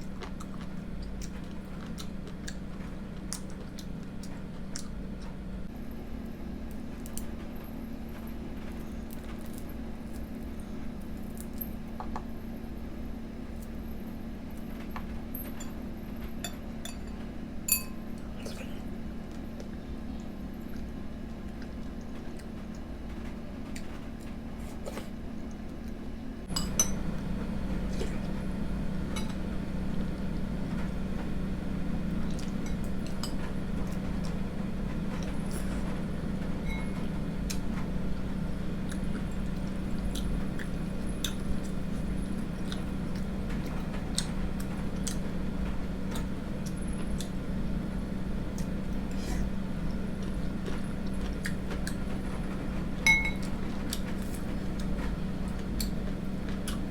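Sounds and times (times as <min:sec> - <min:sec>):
steady low hum: 0:00.0 - 0:56.9
spoon clinking against bowl: 0:17.7 - 0:18.0, 0:53.1 - 0:53.5.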